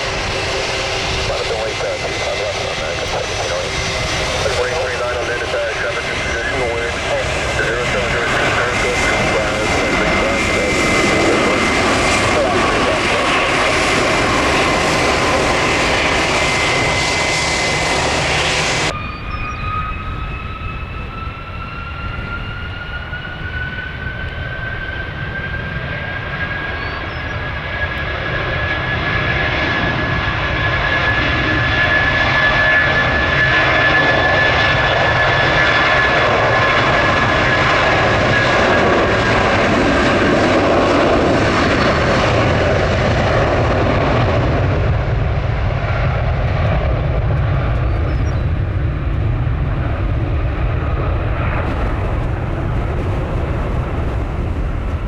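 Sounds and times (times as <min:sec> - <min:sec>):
jet airliner engines whining: 0:00.0 - 0:55.0
wind rumble on microphone: 0:17.7 - 0:26.1, 0:36.4 - 0:55.0.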